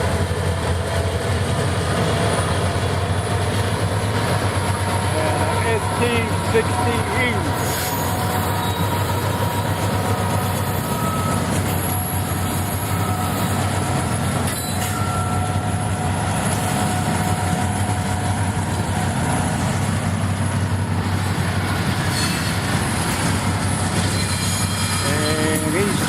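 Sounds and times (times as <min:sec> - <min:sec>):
freight train rumbling past: 0:00.0 - 0:26.0
faint wheel squeal: 0:07.6 - 0:13.7, 0:14.5 - 0:15.7, 0:23.7 - 0:26.0.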